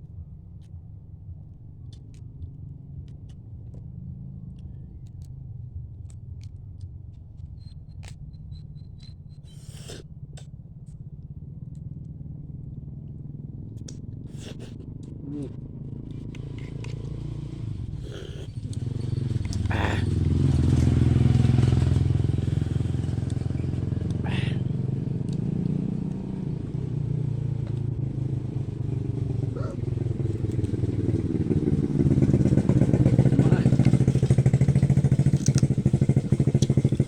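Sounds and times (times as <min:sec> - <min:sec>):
low engine rumble: 0:08.2 - 0:37.0
crab shell cracking: 0:35.1 - 0:36.8.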